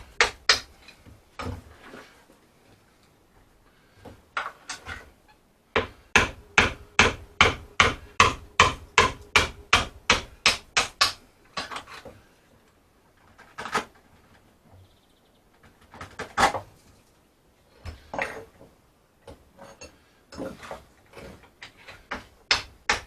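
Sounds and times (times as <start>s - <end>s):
hammer strikes: 5.8s - 11.8s.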